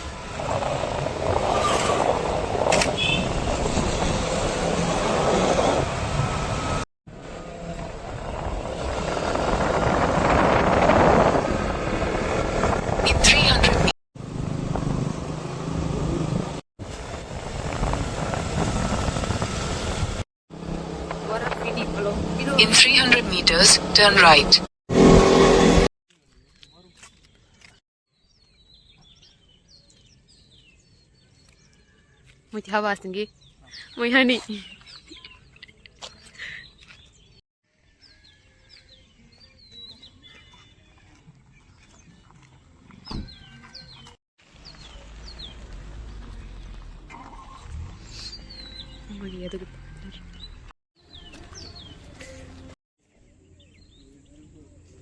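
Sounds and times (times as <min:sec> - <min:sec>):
road and wind noise: 0:00.0 - 0:25.9, 0:41.1 - 0:52.8
small birds chirping: 0:26.4 - 0:55.0
quiet outdoor background noise: 0:51.0 - 0:55.0.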